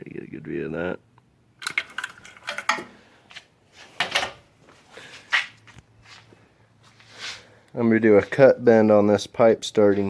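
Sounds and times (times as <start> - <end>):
hard objects clicking and knocking: 1.6 - 3.0.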